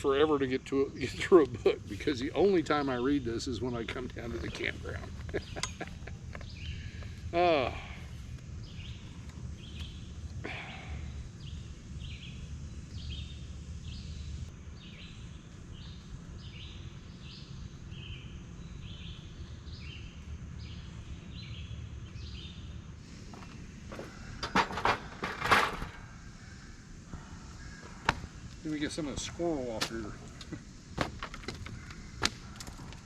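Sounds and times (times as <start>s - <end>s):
songbird calling: 0.0s - 33.0s.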